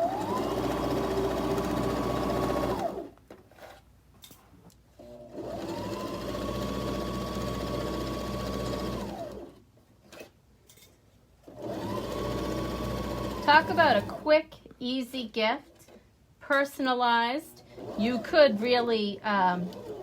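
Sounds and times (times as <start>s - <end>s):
sewing machine stitching: 0.0s - 3.8s, 5.0s - 10.3s, 11.4s - 14.3s, 17.6s - 20.0s.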